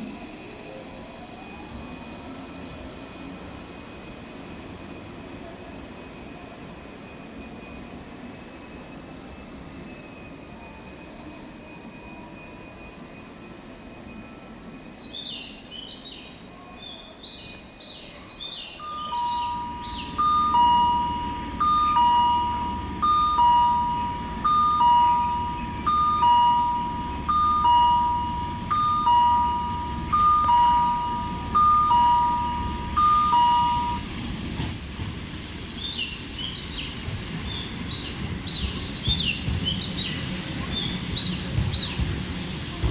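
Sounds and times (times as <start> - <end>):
train rumble: 0.0 - 16.8, 18.0 - 42.9
bird-like chirping: 15.1 - 34.0
electronic two-note chime: 18.8 - 34.0.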